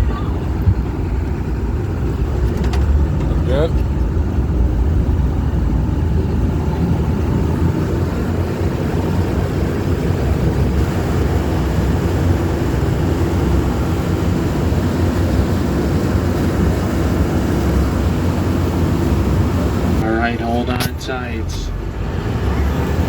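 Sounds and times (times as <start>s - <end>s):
boat engine rumbling: 0.0s - 23.0s.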